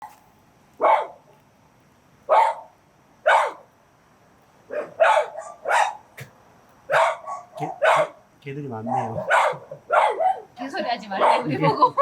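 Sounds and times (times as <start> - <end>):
dog barking: 0.8 - 1.2, 2.3 - 3.7, 4.7 - 6.3, 6.9 - 8.2, 8.8 - 10.5, 11.2 - 11.7.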